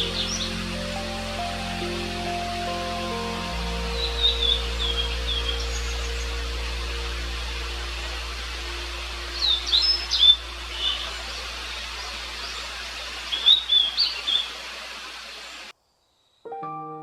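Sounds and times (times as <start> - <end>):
bird singing whistled notes: 0.0 - 7.1, 9.3 - 14.5
background hiss: 0.0 - 16.4.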